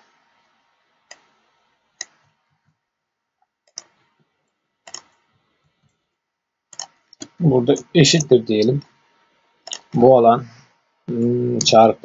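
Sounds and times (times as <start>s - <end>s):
computer mouse clicking: 1.1s - 1.4s, 2.0s - 2.4s, 3.6s - 4.1s, 4.8s - 6.0s, 6.7s - 8.8s, 9.6s - 10.0s.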